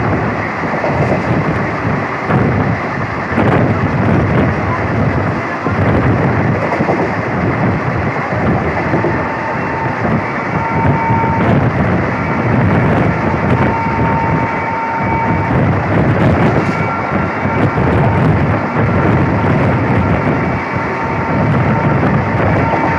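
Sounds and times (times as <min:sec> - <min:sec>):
train wheels rumbling on track: 0:00.0 - 0:22.9
wind buffeting microphone: 0:00.0 - 0:22.9.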